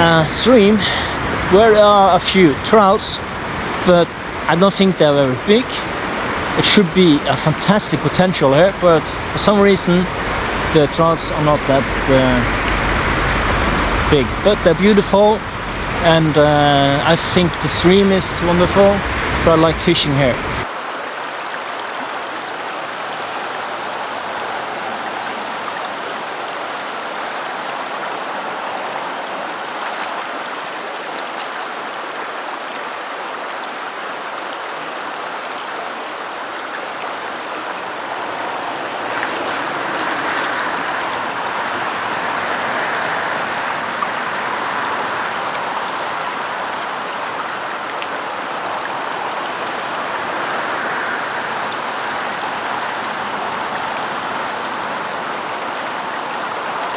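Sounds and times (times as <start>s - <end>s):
stream rushing: 0.0s - 56.9s
rain falling: 20.6s - 56.9s.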